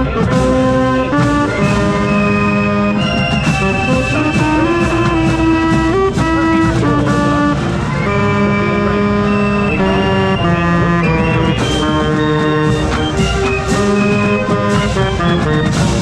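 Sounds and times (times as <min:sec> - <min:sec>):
drum hits: 0:00.0 - 0:08.5
marching band brass: 0:00.0 - 0:16.0.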